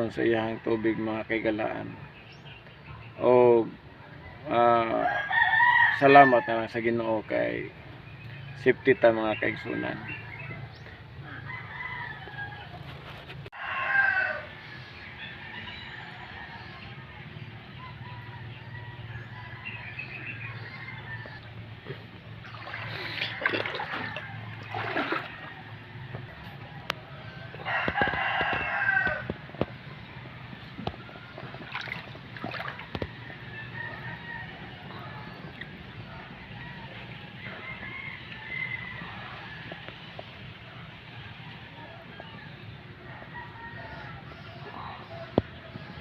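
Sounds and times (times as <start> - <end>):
low outdoor background: 0.0 - 46.0
rooster crowing: 4.8 - 6.7, 9.8 - 13.0, 13.6 - 17.0, 27.2 - 29.6, 32.9 - 35.4, 36.1 - 39.9, 43.1 - 45.4.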